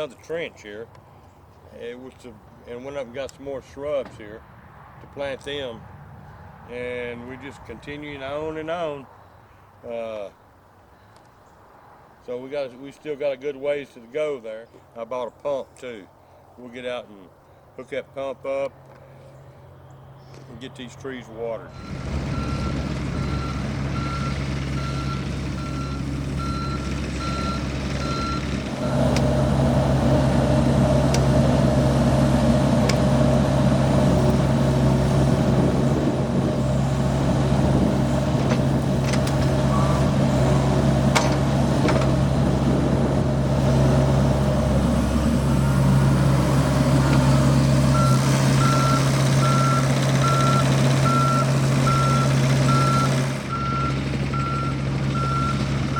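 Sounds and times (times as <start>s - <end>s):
excavator diesel engine running: 21.8s - 55.9s.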